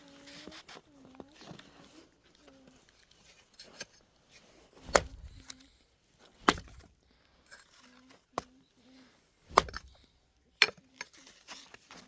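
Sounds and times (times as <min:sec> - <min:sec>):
heavy chopping blows on wood: 0:04.8 - 0:05.4, 0:06.4 - 0:06.9, 0:09.5 - 0:10.0.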